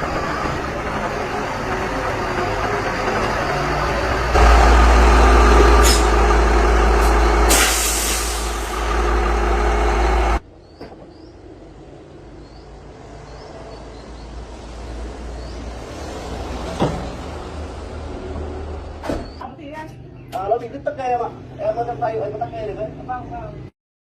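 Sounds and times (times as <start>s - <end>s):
diesel engine rumbling: 0.0s - 23.7s
air brake hiss: 5.8s - 6.2s, 7.5s - 8.8s.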